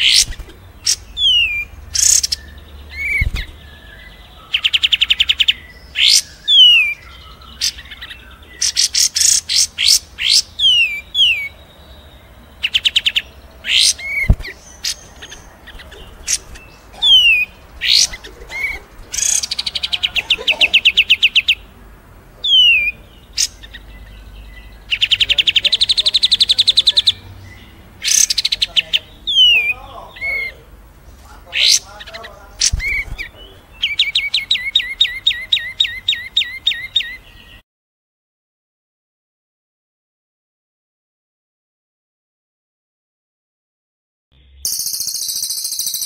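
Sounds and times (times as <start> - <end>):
descending whistled bird notes: 0.0 - 21.6, 22.4 - 30.7, 44.4 - 46.0
songbirds trilling: 0.0 - 37.6, 44.4 - 46.0.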